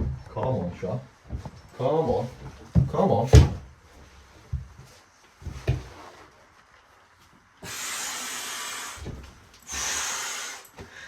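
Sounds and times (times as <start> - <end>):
loud hiss: 7.6 - 11.0.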